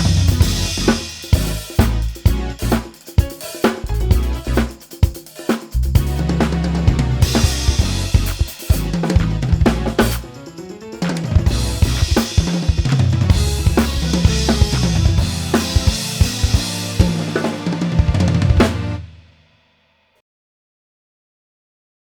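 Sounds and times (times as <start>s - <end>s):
backing track with deep bass: 0.0s - 4.9s, 5.8s - 10.3s, 11.4s - 19.0s
drum kit playing: 0.0s - 19.5s.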